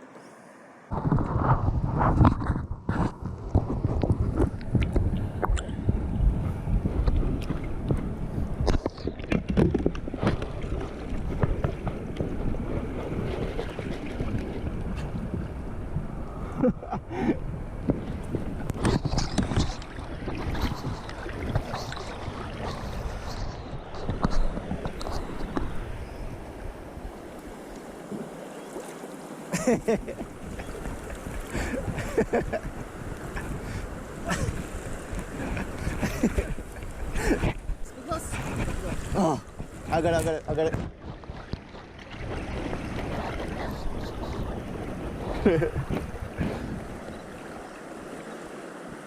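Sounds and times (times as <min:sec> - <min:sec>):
wind rumbling on microphone: 0:00.9 - 0:27.8, 0:29.7 - 0:48.2
water splashing around kayak: 0:00.9 - 0:49.0
lifejacket scratching against camera: 0:18.7 - 0:25.8, 0:34.4 - 0:47.3.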